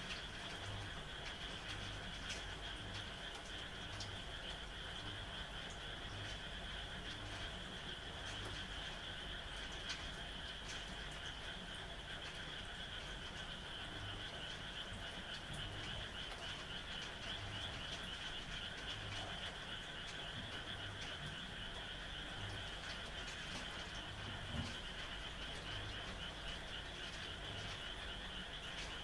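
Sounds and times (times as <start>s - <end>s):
frogs trilling: 0.0s - 29.0s
light rain dripping: 0.0s - 29.0s
low frog croaks: 10.3s - 29.0s.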